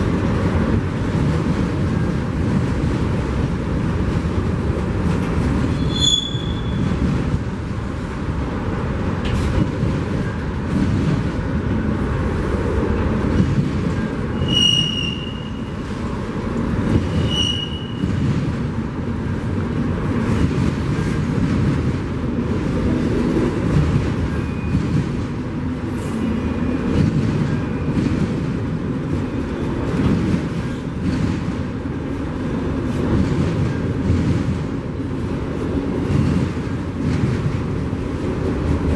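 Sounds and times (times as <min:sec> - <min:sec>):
train rumbling on rails: 0:00.0 - 0:38.9
high-pitched wheel squeals: 0:05.7 - 0:06.9, 0:14.3 - 0:15.8, 0:17.1 - 0:18.1.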